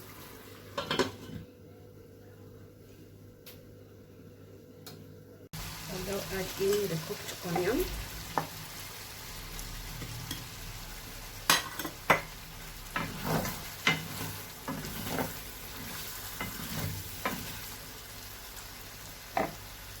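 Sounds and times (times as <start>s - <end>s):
low sizzle: 0.0s - 20.0s
spoon scraping a pot: 12.9s - 17.7s.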